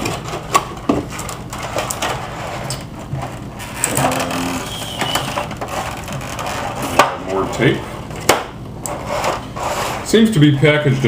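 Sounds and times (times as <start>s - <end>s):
cardboard and plastic crinkling: 0.0s - 7.8s.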